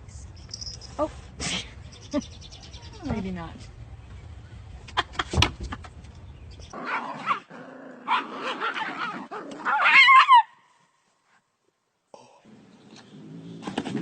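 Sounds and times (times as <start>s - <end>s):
dog barking and yipping: 6.8s - 10.6s
dog whining yelp: 8.1s - 10.5s.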